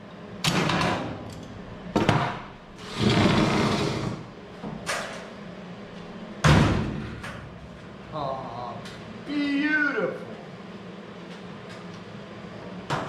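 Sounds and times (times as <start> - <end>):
door scraping: 2.8 - 4.3.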